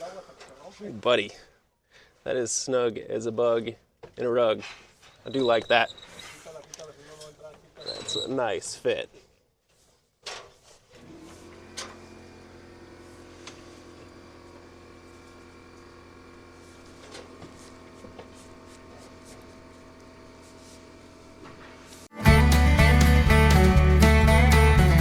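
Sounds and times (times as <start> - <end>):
guitar music: 22.1 - 25.0.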